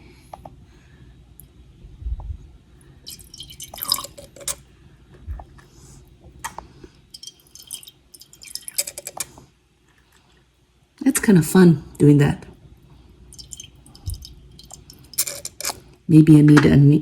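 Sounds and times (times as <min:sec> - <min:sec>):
water dripping: 0:02.8 - 0:04.6, 0:06.3 - 0:10.4, 0:13.3 - 0:15.9
plastic pipette squirting water: 0:03.0 - 0:04.7, 0:05.3 - 0:10.4, 0:13.3 - 0:15.9
clicks against a glass jar: 0:07.2 - 0:09.4, 0:13.4 - 0:15.8.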